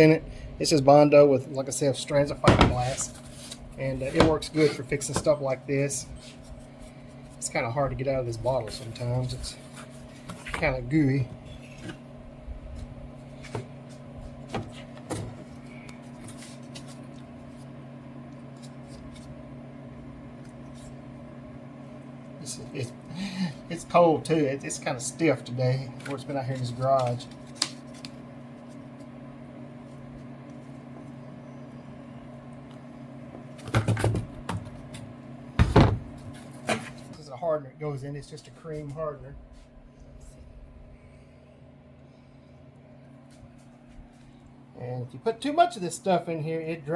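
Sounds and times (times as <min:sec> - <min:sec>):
steady low hum: 0:00.0 - 0:46.9
low hum: 0:39.0 - 0:44.8.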